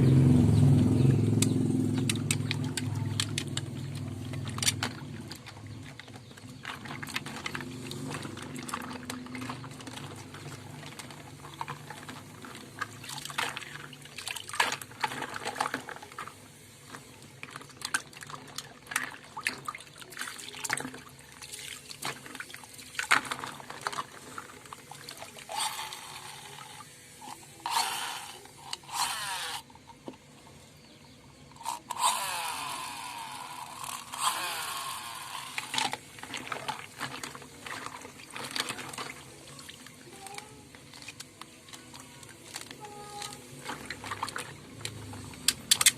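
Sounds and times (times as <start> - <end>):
toys clicking and knocking: 1.3 - 13.8, 25.4 - 30.3, 31.5 - 37.5, 40.0 - 44.2, 44.8 - 45.9
water splashing over toy cars: 1.3 - 30.2, 31.6 - 45.9.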